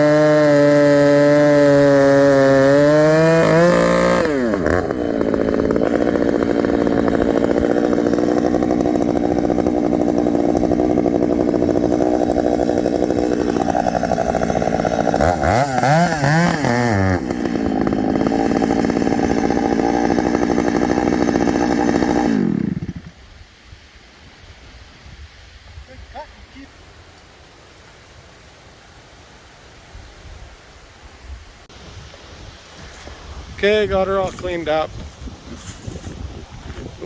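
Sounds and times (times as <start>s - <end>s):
chainsaw engine running: 0.0s - 23.2s, 33.8s - 37.0s
wind noise: 23.2s - 26.9s, 29.8s - 37.0s.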